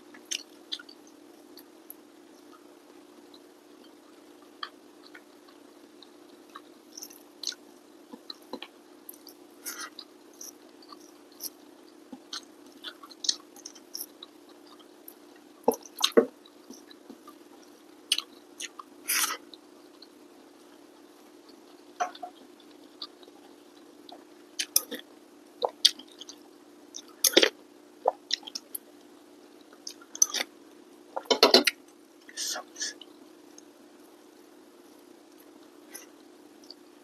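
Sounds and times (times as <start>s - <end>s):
person chewing wetly: 0.2s - 1.7s, 4.6s - 7.6s, 8.2s - 20.1s, 22.0s - 29.0s.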